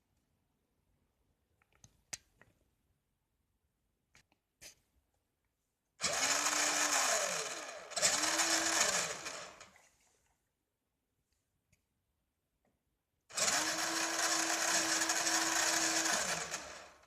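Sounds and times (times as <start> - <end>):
toy truck motor whining: 6.0 - 9.7, 13.3 - 17.0.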